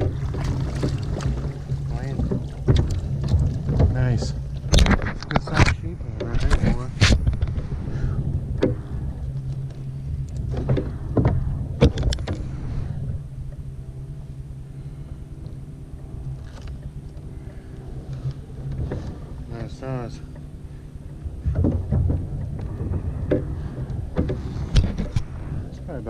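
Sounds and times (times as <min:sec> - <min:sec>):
knocks and thumps on kayak: 0:00.0 - 0:09.8, 0:10.4 - 0:13.2, 0:18.2 - 0:19.8, 0:20.4 - 0:25.6
faint steady tones: 0:00.0 - 0:26.0
low drone: 0:00.0 - 0:26.0.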